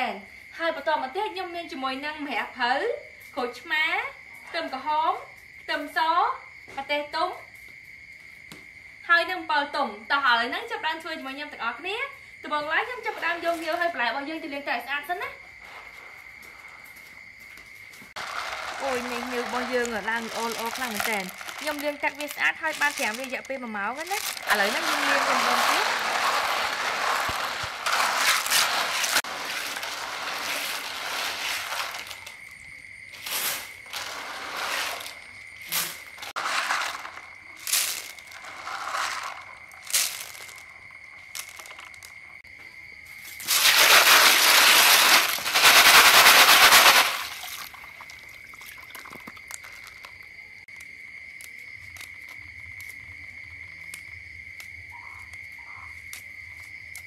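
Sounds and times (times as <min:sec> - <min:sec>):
shells clattering in water: 0:18.2 - 0:32.4, 0:36.2 - 0:40.7.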